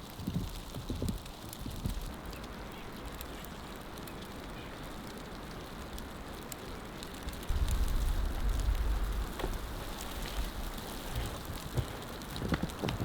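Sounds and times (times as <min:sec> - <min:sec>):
wind and blowing snow hiss: 0:00.0 - 0:13.0
footsteps crunching through snow: 0:09.3 - 0:13.0.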